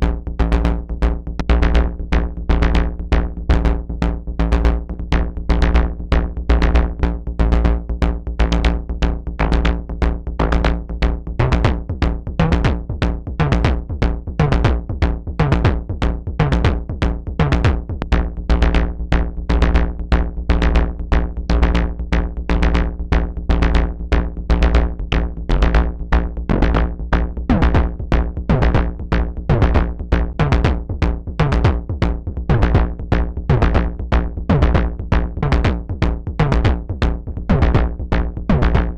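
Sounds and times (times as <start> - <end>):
deep synth bass: 0.0 - 38.9.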